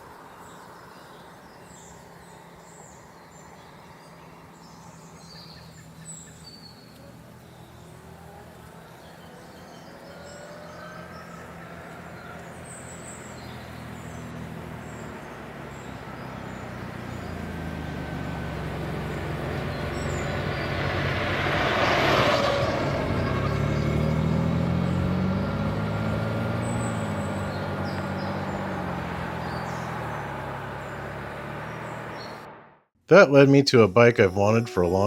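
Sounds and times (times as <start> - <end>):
vehicle engine approaching: 1.4 - 35.0.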